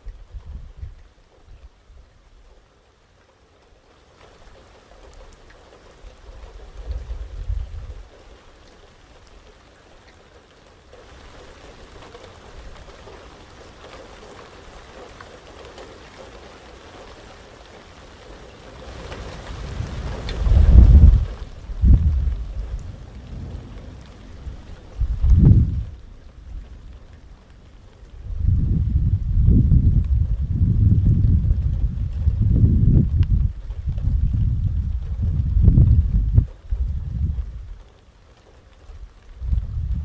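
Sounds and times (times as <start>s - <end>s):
rain falling: 0.0s - 40.0s
low rumble: 19.9s - 26.8s, 28.1s - 37.8s, 39.4s - 40.0s.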